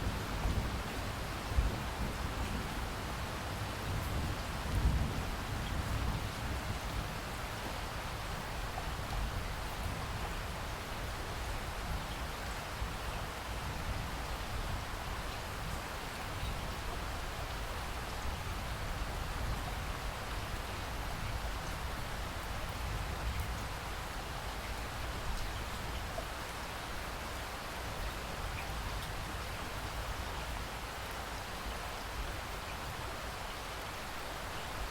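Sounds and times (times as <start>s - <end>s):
rain pattering on surfaces: 0.0s - 34.9s.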